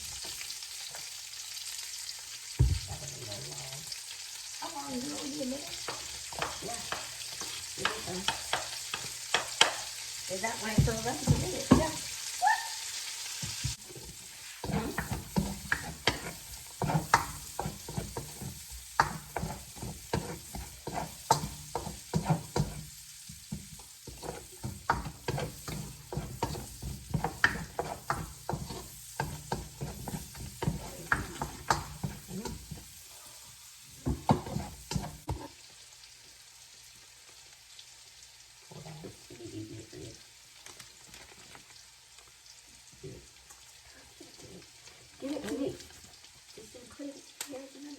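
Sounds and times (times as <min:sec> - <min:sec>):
food sizzling in a pan: 0:00.0 - 0:47.9
utensil scraping and tapping pan: 0:05.7 - 0:09.9, 0:14.0 - 0:32.9, 0:34.0 - 0:35.5.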